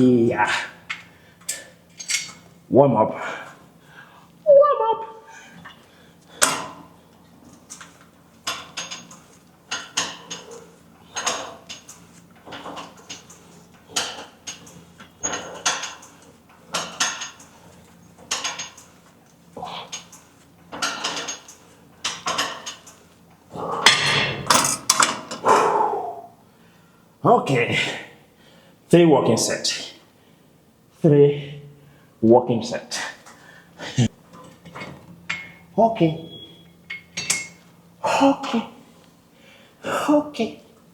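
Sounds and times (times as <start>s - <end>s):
gym weights clanking: 13.9s - 16.0s, 20.7s - 21.5s.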